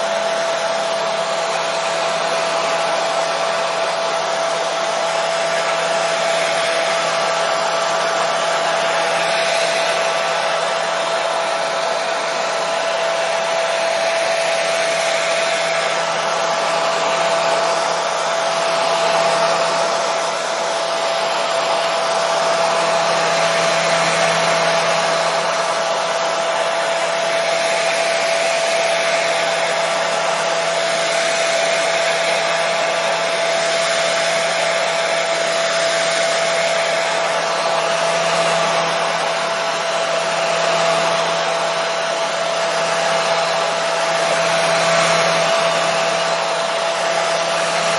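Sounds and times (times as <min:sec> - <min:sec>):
hair dryer running: 0:00.0 - 0:47.9.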